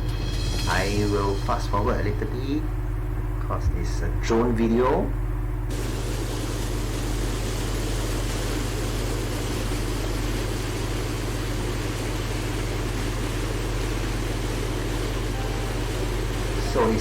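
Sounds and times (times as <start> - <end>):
constant low hum: 0.0 - 5.7.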